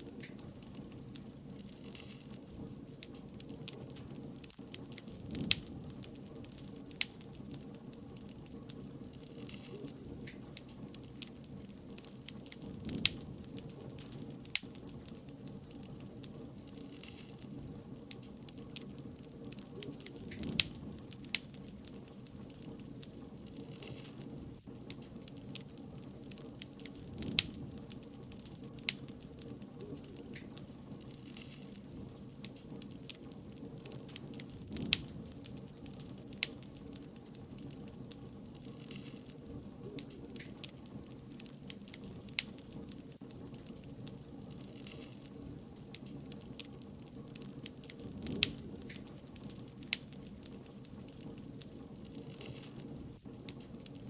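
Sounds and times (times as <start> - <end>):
bonfire crackling and hissing: 0.0 - 54.0
sharp pops from burning wood: 0.0 - 54.0.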